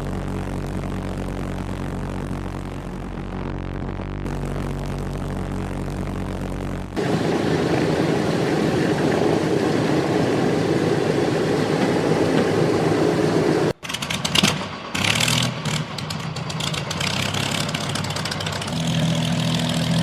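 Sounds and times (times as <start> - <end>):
propeller aircraft engine drone: 0.0 - 20.0.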